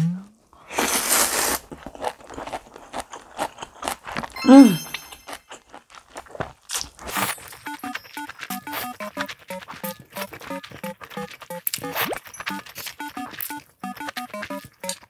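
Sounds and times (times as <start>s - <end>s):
slurping noodles: 0.6s - 4.2s
crunching and chewing: 0.7s - 15.0s
light tune: 4.4s - 5.4s, 7.5s - 15.0s.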